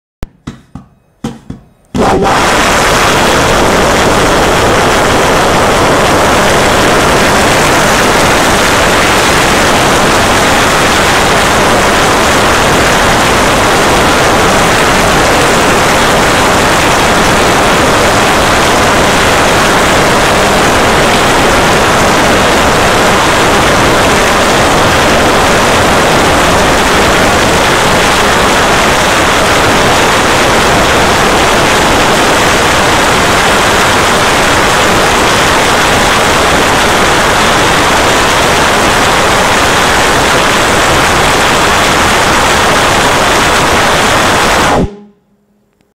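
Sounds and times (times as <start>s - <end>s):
pulse jet engine running: 1.9s - 27.9s, 34.0s - 45.6s.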